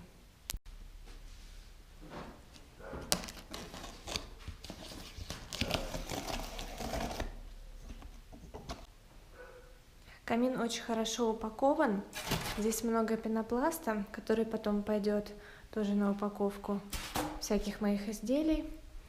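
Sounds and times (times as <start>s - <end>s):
cardboard tearing and rustling: 3.1s - 7.4s.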